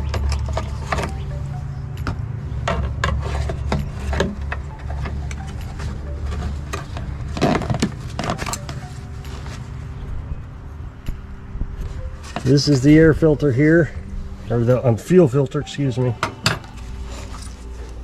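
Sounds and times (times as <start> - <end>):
tools clicking and scraping on engine: 0.0 - 9.9, 16.2 - 18.0
steady low hum: 0.0 - 18.0.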